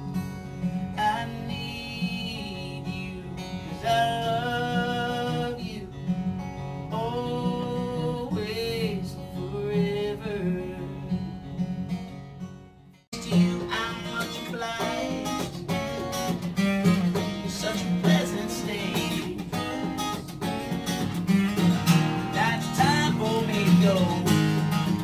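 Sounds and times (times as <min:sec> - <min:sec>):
acoustic guitar strumming: 0:00.0 - 0:25.0
man singing long notes: 0:17.4 - 0:20.1, 0:22.2 - 0:24.4.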